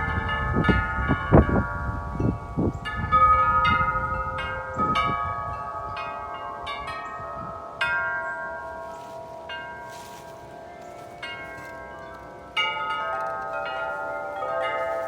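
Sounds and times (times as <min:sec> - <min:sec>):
wind chimes ringing: 0:00.0 - 0:15.0.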